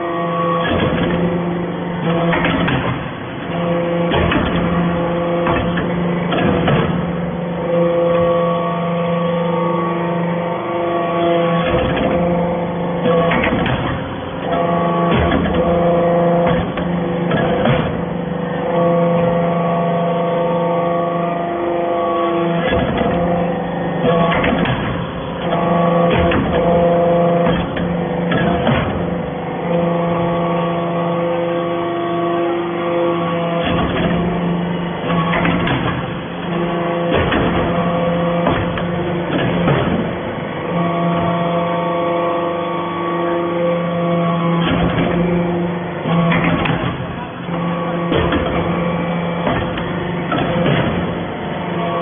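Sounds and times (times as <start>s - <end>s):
baler machine hum: 0.0s - 52.0s
harsh machine working noise: 0.0s - 52.0s
press knocking: 13.0s - 19.3s, 22.5s - 29.9s, 35.0s - 40.3s, 44.5s - 52.0s.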